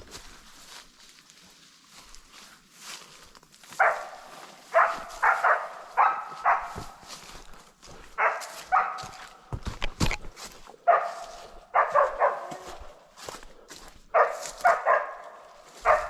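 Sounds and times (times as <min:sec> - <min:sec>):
footsteps: 0:00.0 - 0:16.0
dog barking: 0:03.8 - 0:09.5, 0:10.8 - 0:13.1, 0:14.1 - 0:16.0.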